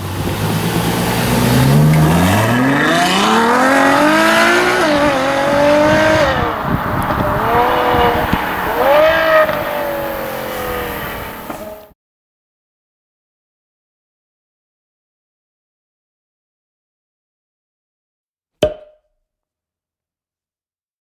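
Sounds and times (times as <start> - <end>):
car engine accelerating hard: 0.0 - 11.9.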